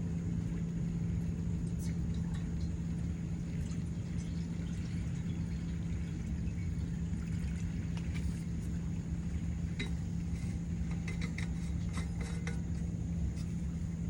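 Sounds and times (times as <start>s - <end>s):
low mechanical hum: 0.0s - 14.0s
light clicks and clinks: 9.8s - 13.5s.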